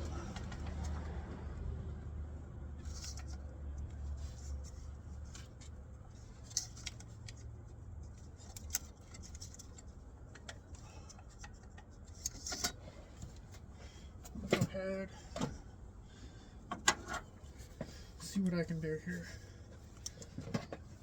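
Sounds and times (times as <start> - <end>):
low steady hum: 0.0 - 21.0
metallic clicks and taps of tools: 8.4 - 12.8.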